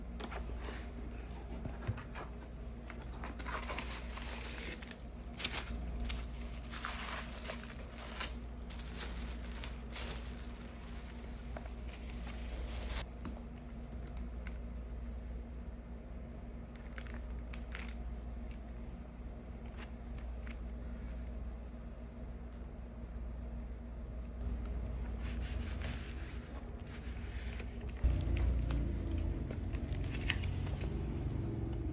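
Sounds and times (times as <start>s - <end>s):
steady low hum: 0.0s - 31.9s
packaging crinkling and tearing: 2.8s - 13.1s, 27.4s - 31.9s.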